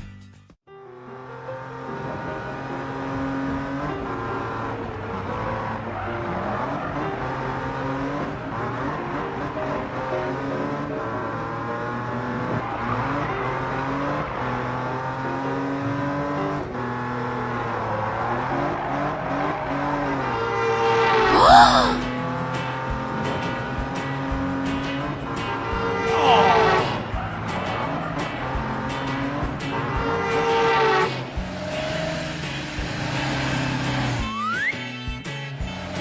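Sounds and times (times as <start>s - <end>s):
cartoon race car engines: 1.0s - 36.0s.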